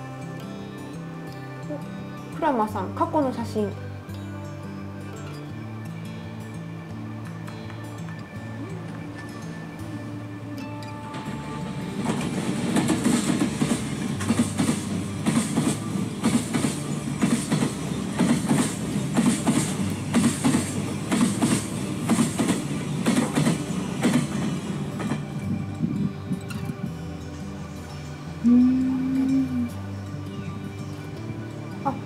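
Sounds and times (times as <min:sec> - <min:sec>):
train rumble: 0:10.9 - 0:32.0
train wheels clacking on rails: 0:11.0 - 0:25.6.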